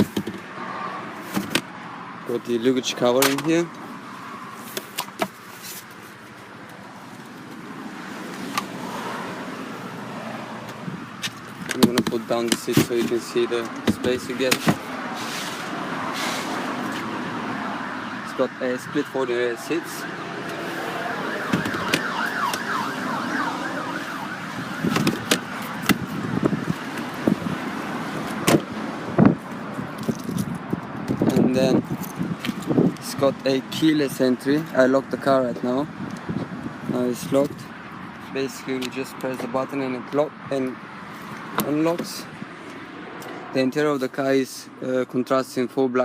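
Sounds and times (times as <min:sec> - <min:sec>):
car seats clicking and knocking: 0:00.0 - 0:00.4, 0:01.3 - 0:01.7, 0:10.6 - 0:14.9, 0:24.8 - 0:27.4, 0:28.3 - 0:29.4
road traffic: 0:00.0 - 0:46.0
street noise: 0:00.0 - 0:46.0
siren yelping: 0:19.5 - 0:26.4
wind on microphone: 0:24.5 - 0:27.8, 0:29.0 - 0:33.0, 0:35.9 - 0:37.4.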